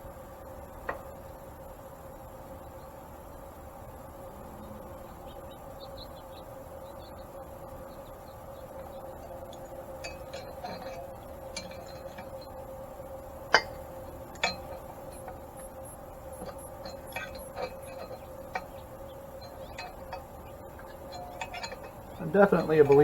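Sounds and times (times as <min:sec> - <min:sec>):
steady hum: 0:00.0 - 0:23.0
metal tools clinking: 0:09.2 - 0:12.7, 0:13.4 - 0:23.0.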